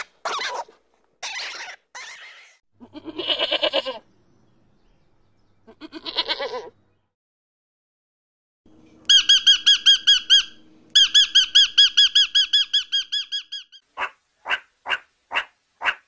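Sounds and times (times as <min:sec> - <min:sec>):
parrot squeaky chirps: 0:09.1 - 0:14.6.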